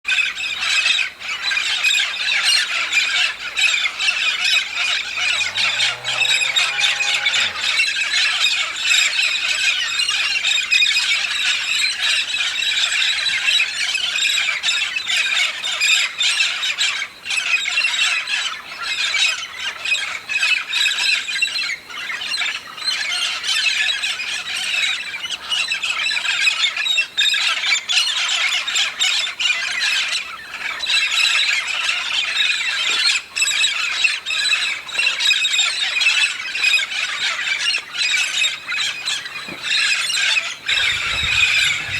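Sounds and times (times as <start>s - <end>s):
parrot flock squawking: 4.8s - 8.1s, 38.4s - 41.9s.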